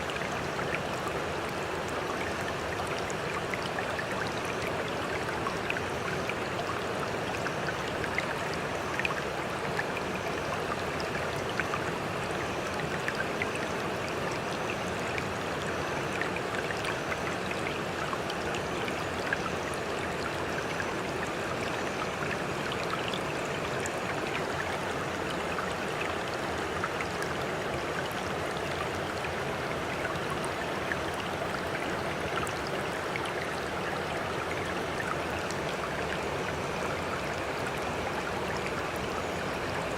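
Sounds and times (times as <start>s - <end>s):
running water with small splashes: 0.0s - 39.9s.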